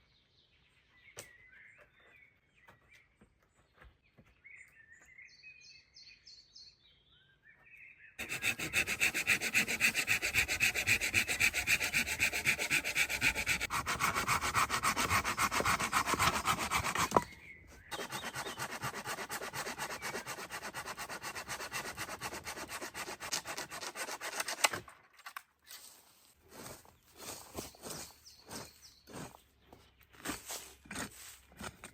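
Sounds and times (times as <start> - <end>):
hand tool rubbing on wood: 8.2 - 17.3, 17.9 - 24.6.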